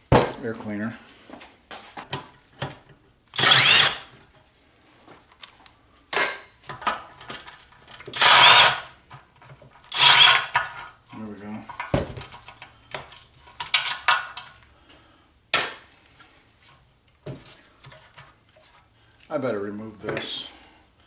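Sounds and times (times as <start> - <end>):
cordless drill motor whine: 3.4 - 4.1, 8.2 - 8.9, 9.9 - 10.5
clatter of parts: 3.4 - 4.2, 6.2 - 10.9, 11.7 - 14.6.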